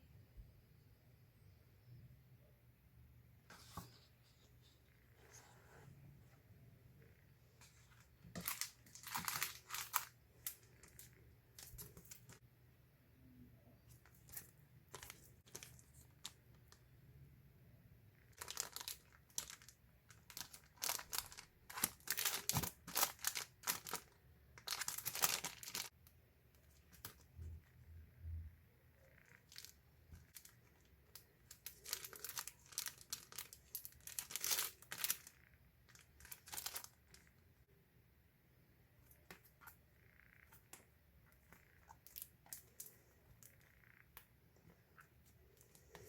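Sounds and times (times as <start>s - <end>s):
packaging tearing and crinkling: 8.4s - 10.1s, 18.4s - 19.7s, 20.3s - 25.9s, 31.6s - 35.3s.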